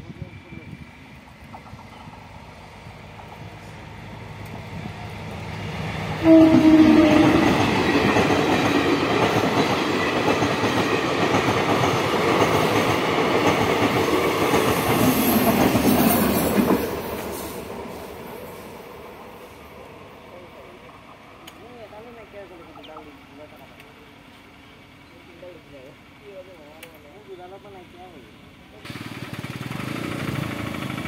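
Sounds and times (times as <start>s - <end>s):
train rumbling past: 0.0s - 31.0s
train horn blast: 6.2s - 7.6s
wheels clattering over rails: 28.9s - 31.0s.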